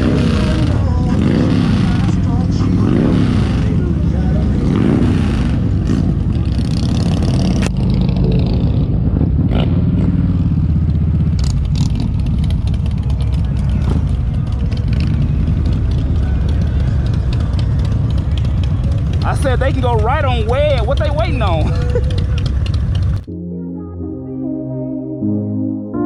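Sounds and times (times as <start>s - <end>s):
motorcycle engine running: 0.0s - 23.3s.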